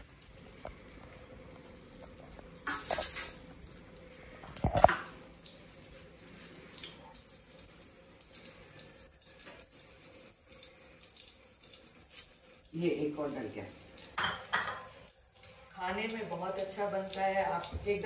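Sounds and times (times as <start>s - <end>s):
cutlets sizzling in oil: 0.0s - 18.0s.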